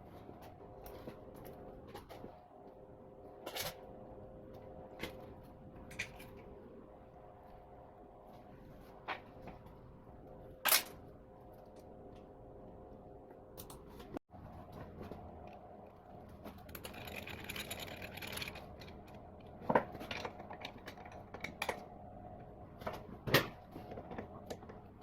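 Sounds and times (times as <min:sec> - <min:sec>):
workshop hum: 0:00.0 - 0:25.0
tools clicking and knocking: 0:16.4 - 0:21.9.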